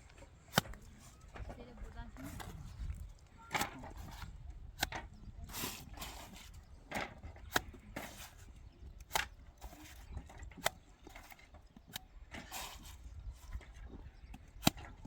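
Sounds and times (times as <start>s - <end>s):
short scrape: 5.5s - 6.6s.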